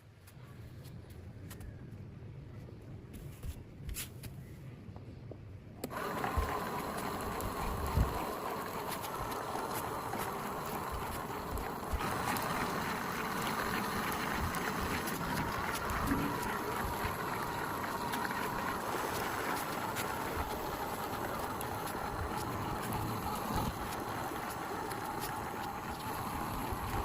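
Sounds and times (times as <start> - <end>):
small motor running with whine: 5.8 - 27.0.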